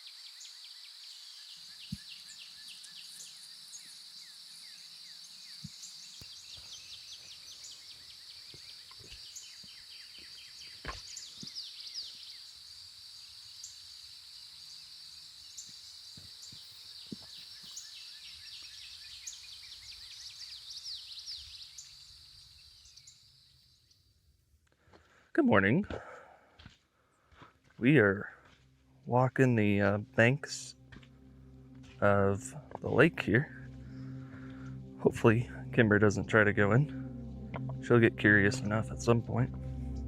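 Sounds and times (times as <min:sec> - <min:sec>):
high insect chorus: 0:00.0 - 0:24.1.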